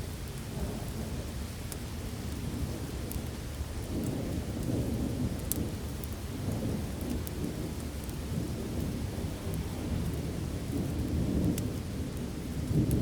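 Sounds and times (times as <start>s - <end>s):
steady heavy rain: 0.0s - 13.0s
low rumble of thunder: 3.8s - 13.0s.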